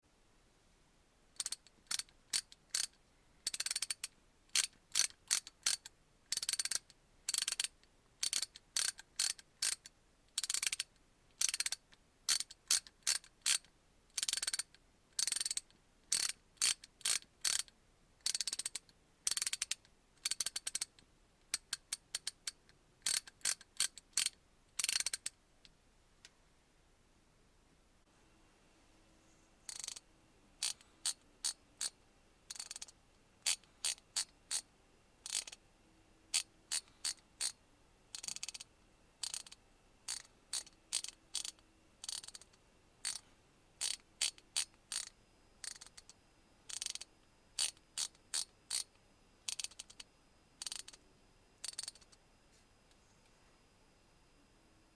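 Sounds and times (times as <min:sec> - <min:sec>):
ratchet clicking: 0:01.4 - 0:25.4, 0:29.7 - 0:30.0, 0:30.6 - 0:34.6, 0:35.2 - 0:35.6, 0:36.3 - 0:43.2, 0:43.8 - 0:48.9, 0:49.5 - 0:50.0, 0:50.6 - 0:51.0, 0:51.6 - 0:52.1.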